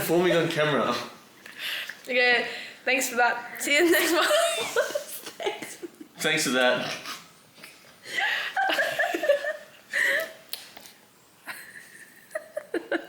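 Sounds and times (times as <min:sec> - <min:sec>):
people laughing: 0:04.0 - 0:06.1, 0:08.1 - 0:10.3, 0:11.5 - 0:13.0.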